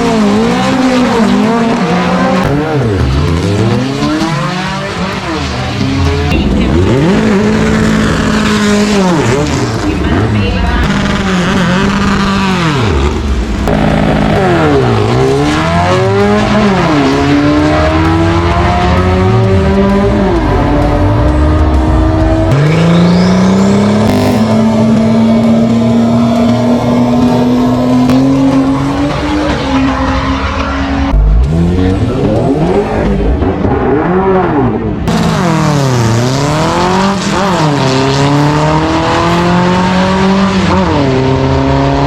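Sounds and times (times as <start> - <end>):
racing engines revving: 0.0 - 42.0.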